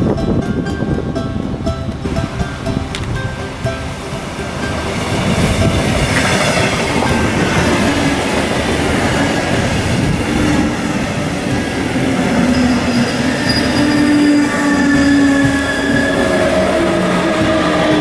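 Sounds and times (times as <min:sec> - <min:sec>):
train wheels on rails: 0:00.0 - 0:18.0
wheel squealing: 0:03.8 - 0:18.0.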